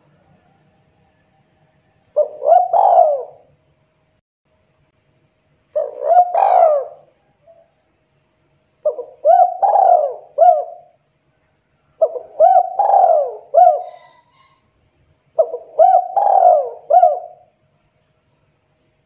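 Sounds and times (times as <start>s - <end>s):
dove cooing: 2.1s - 3.5s, 5.7s - 7.7s, 8.8s - 11.0s, 12.0s - 14.6s, 15.4s - 17.5s.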